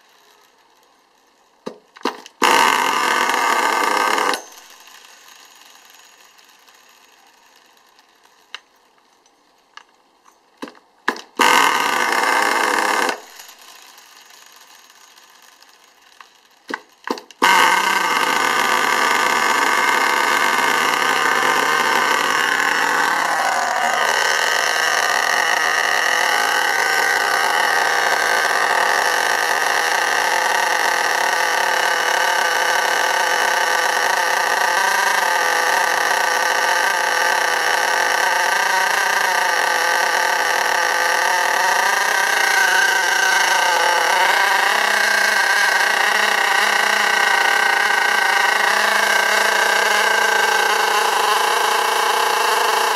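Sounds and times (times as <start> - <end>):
nitro engine idling: 17.4 - 52.9.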